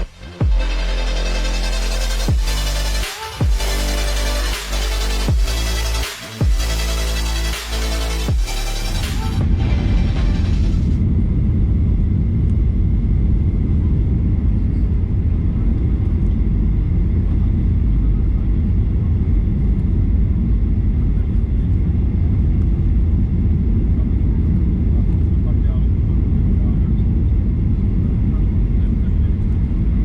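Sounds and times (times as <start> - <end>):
airliner engine rumble: 9.2 - 30.0.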